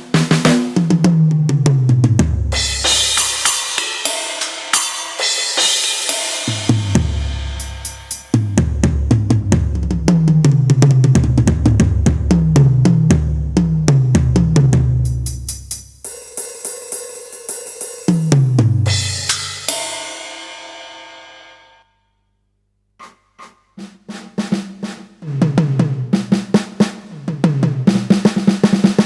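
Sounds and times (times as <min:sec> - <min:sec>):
snare drum fills: 0:00.0 - 0:15.2
cymbals: 0:02.5 - 0:09.2, 0:15.0 - 0:21.9
cymbal crash ringing: 0:02.6 - 0:08.5, 0:18.9 - 0:21.8
deep tom hits: 0:06.5 - 0:15.3.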